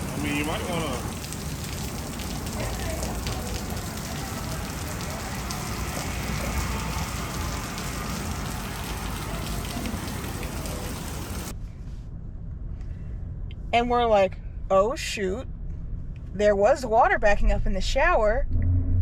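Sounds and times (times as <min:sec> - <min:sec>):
water pouring and splashing: 0:00.0 - 0:11.5.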